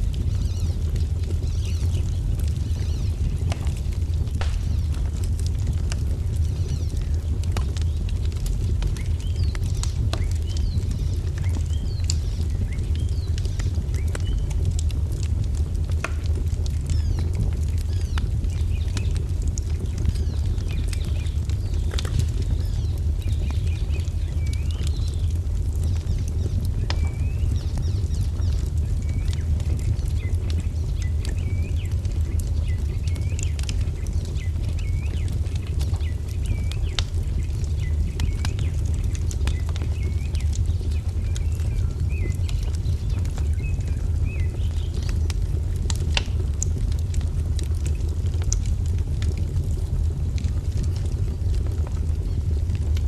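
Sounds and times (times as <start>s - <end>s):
low rumble: 0.0s - 32.9s
wood fire crackling: 0.0s - 53.0s
small birds chirping: 0.1s - 46.9s.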